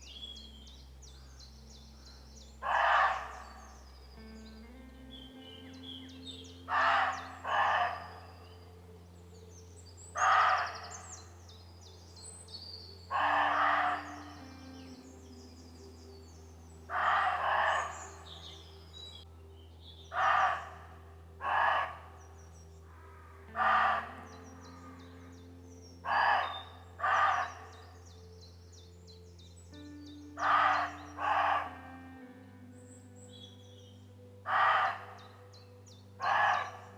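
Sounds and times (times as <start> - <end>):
small birds singing: 0.0 - 36.9
deer barking: 2.6 - 3.8, 6.5 - 8.4, 10.2 - 11.3, 13.1 - 14.6, 16.9 - 18.5, 20.1 - 22.2, 23.0 - 27.9, 30.4 - 32.2, 34.4 - 35.5, 36.2 - 36.9.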